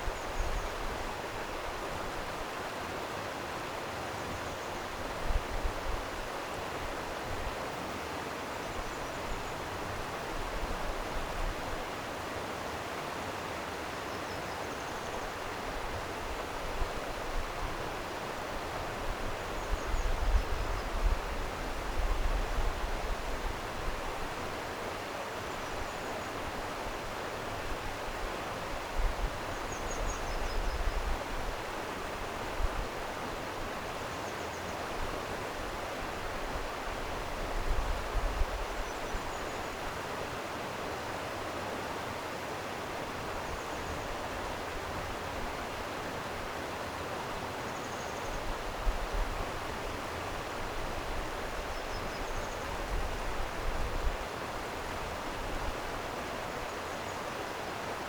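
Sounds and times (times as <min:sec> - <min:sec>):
stream water flowing: 0:31.2 - 0:58.0.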